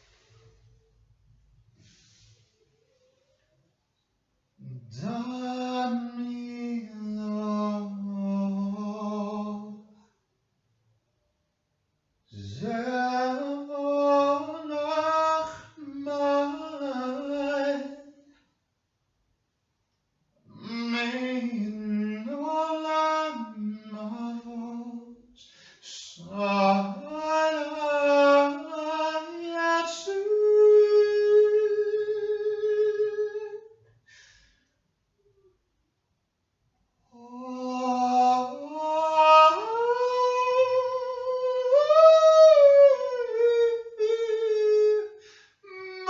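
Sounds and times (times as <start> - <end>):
person singing long notes: 4.6 - 9.8, 12.4 - 18.2, 20.5 - 25.1, 25.8 - 33.6, 37.1 - 46.0.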